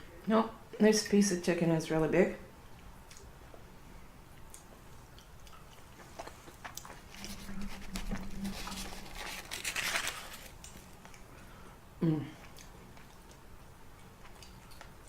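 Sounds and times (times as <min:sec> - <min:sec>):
steady low hum: 0:00.0 - 0:15.0
chewing with mouth smacking: 0:02.7 - 0:03.3, 0:04.2 - 0:11.5, 0:12.4 - 0:15.0.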